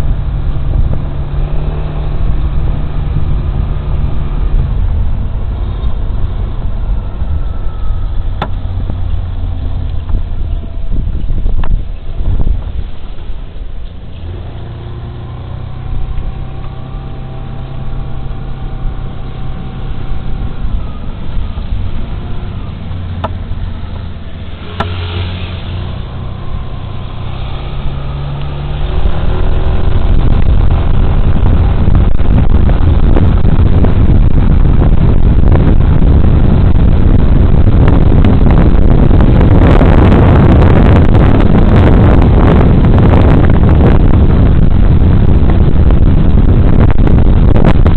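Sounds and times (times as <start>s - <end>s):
wind noise on microphone: 0.0s - 47.9s.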